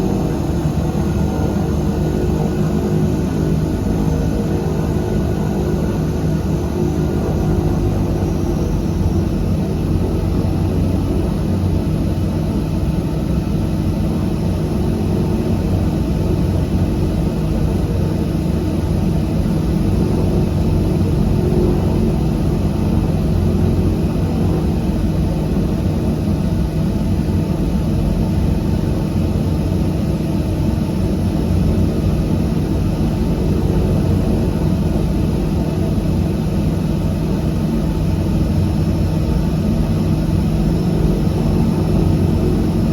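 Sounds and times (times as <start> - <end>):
turboprop engines droning in cabin: 0.0 - 42.9.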